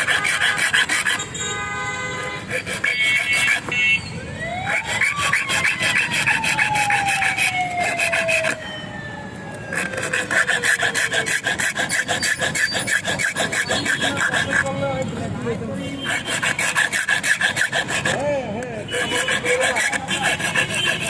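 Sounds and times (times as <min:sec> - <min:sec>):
metal file rasping on key: 0:00.0 - 0:01.3, 0:02.4 - 0:03.7, 0:04.7 - 0:08.6, 0:09.7 - 0:15.2, 0:15.8 - 0:21.0
siren-like tone: 0:04.1 - 0:10.1.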